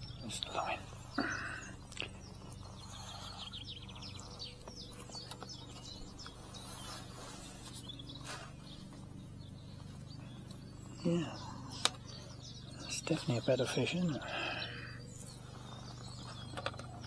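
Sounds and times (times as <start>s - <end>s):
low steady hum: 0.0s - 17.0s
small birds chirping and trilling: 0.0s - 17.0s.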